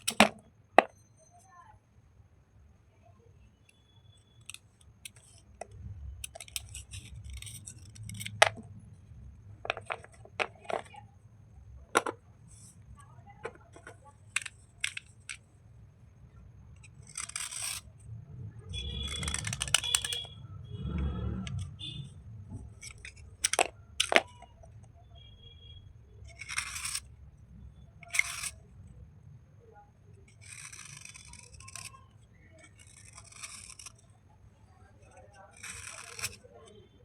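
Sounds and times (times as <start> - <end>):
hard pieces clicking together: 0.0 - 0.9, 4.4 - 8.6, 13.4 - 15.4, 16.8 - 17.9, 19.1 - 20.3, 22.6 - 24.5, 26.2 - 27.1, 28.0 - 28.6, 30.3 - 34.0, 35.1 - 36.5
slate pieces scraping: 0.0 - 1.0, 4.4 - 8.7, 9.6 - 11.0, 13.4 - 15.4, 16.8 - 18.0, 18.8 - 24.8, 26.2 - 27.1, 28.0 - 28.7, 30.2 - 34.1, 35.0 - 36.8.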